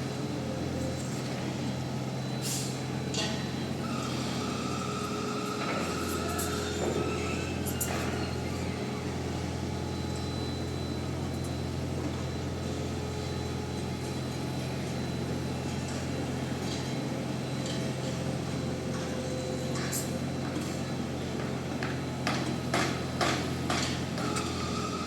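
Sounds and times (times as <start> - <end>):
heavy machinery engine drone: 0.0 - 25.0.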